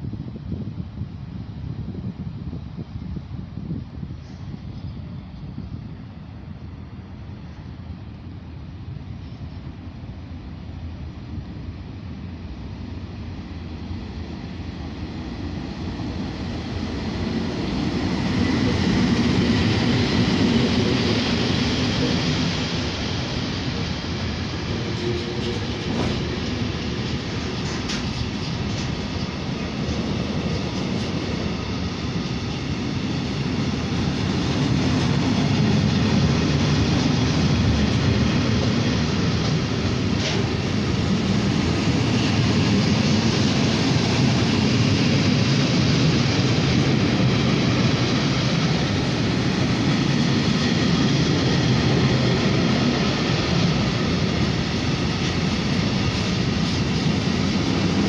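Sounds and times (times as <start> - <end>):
freight train wagons rolling past: 15.1 - 58.0.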